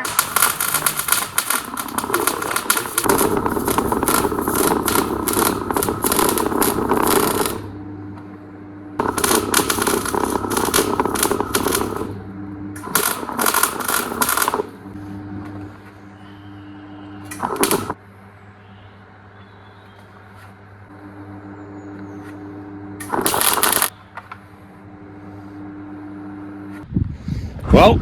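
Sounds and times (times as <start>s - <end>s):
welder arc crackling: 0.0s - 15.8s, 16.5s - 18.0s, 20.9s - 23.9s
steady low hum: 0.0s - 19.4s, 20.7s - 27.6s.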